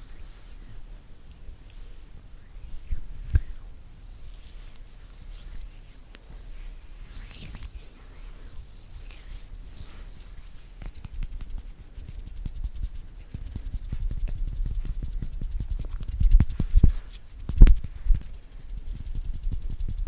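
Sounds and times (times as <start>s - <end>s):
fingers tapping and rubbing: 9.0s - 20.0s.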